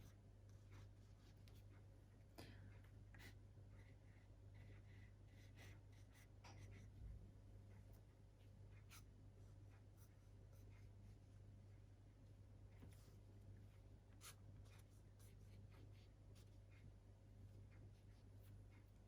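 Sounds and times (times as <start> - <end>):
low steady hum: 0.0 - 19.0
drawing strokes on paper: 7.9 - 11.6.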